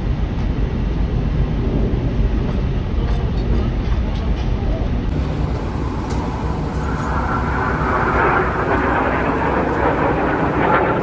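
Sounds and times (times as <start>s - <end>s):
jet aircraft roar overhead: 4.6s - 11.0s.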